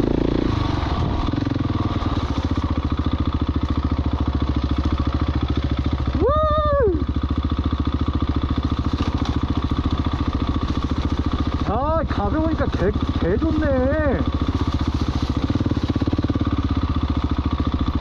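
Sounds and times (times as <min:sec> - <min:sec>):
motorcycle engine running: 0:00.0 - 0:18.0
person whooping: 0:06.1 - 0:07.1.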